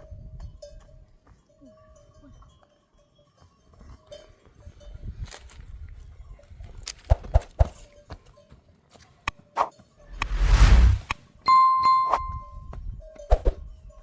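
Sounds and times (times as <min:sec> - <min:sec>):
loud rush of noise: 0:10.1 - 0:11.1
faint bell ringing: 0:11.5 - 0:12.7.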